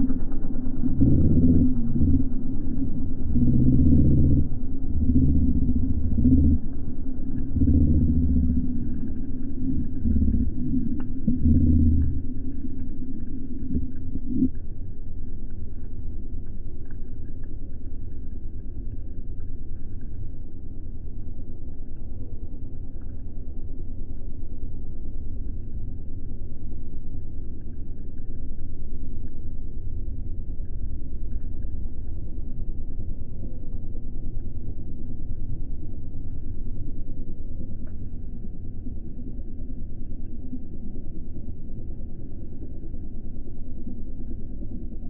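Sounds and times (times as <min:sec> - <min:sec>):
light aircraft engine rumble: 0:00.0 - 0:26.2.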